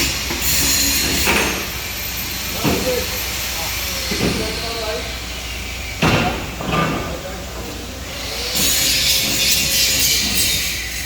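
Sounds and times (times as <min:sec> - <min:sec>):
harsh crackling hiss on metal: 0:08.1 - 0:11.0.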